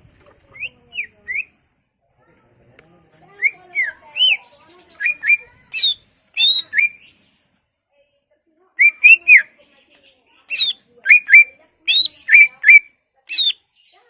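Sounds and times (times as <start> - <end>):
bird whistling song: 0.5 - 1.7, 3.2 - 7.2, 8.8 - 9.6, 10.4 - 13.8.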